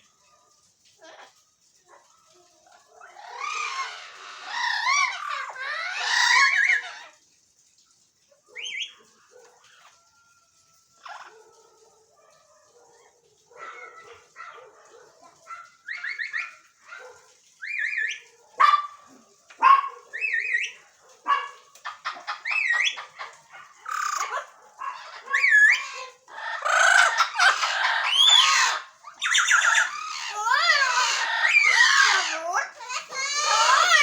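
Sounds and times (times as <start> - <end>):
parrots whistling and squawking: 3.0 - 7.1, 15.8 - 16.7, 17.6 - 18.2, 20.1 - 20.8, 21.8 - 34.0.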